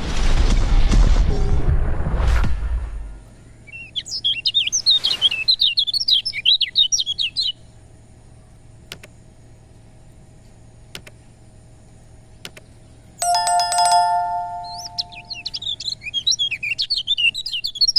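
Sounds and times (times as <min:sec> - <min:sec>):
bird singing high chirps: 0:13.3 - 0:17.9.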